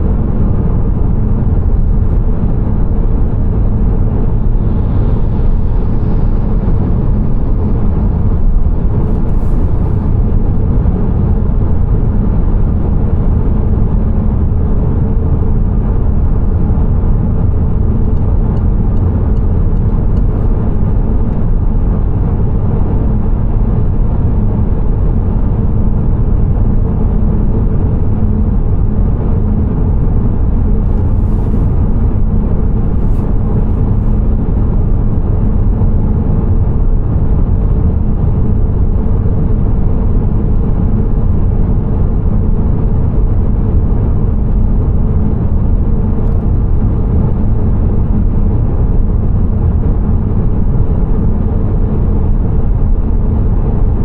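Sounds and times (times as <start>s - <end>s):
car engine and tyre drone: 30.8s - 35.9s.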